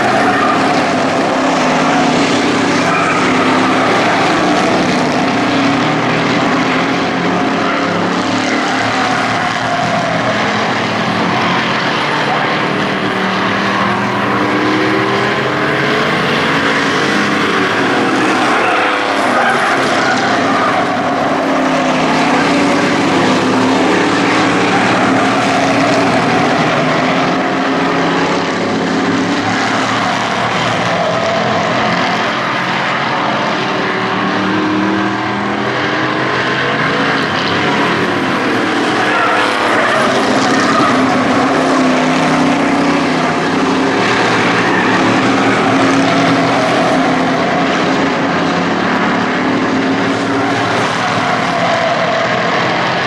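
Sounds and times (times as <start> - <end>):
race truck engines: 0.0 - 53.0.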